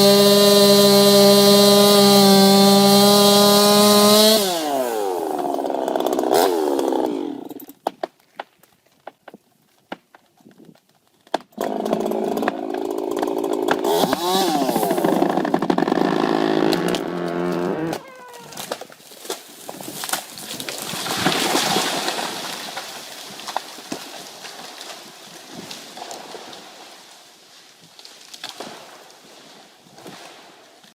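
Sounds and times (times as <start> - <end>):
chainsaw running: 0.0 - 7.7, 11.6 - 18.0.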